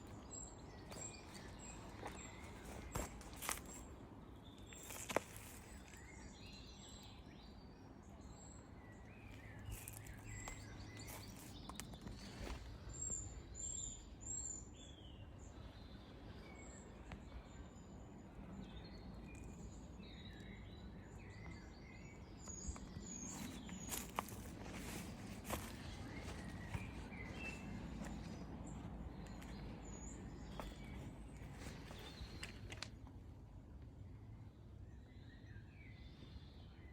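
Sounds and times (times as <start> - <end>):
birds chirping: 0.0 - 33.2
outdoor background noise: 0.0 - 36.9.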